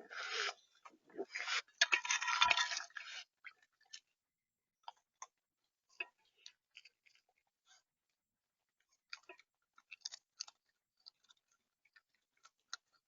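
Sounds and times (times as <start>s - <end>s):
crunching and scraping at feeder: 0.0s - 4.2s, 4.9s - 8.1s, 8.8s - 13.0s
animal pecking at seed: 8.6s - 13.0s.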